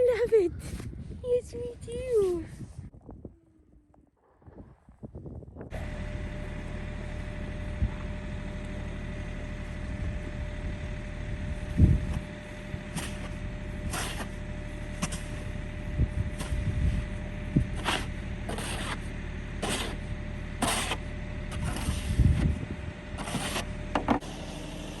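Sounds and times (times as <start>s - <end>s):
vehicle engine running: 5.7s - 25.0s.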